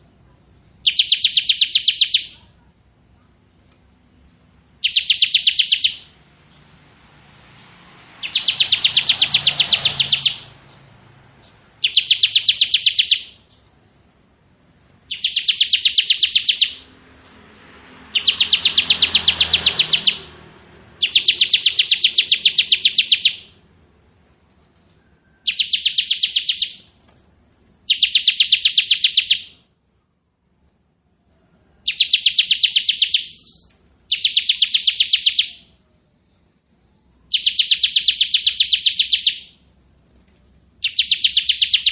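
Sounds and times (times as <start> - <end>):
bird trilling rapid high notes: 0.8 - 2.5, 4.8 - 6.1, 8.2 - 10.6, 11.8 - 13.6, 15.1 - 16.9, 18.1 - 20.3, 20.9 - 23.6, 25.4 - 29.6, 31.8 - 35.7, 37.3 - 39.6, 40.8 - 41.9.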